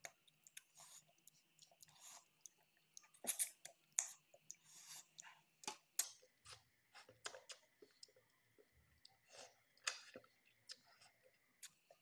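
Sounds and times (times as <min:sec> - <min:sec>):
person chewing: 0:00.0 - 0:08.2
wet mouth clicks and smacks: 0:07.2 - 0:08.2.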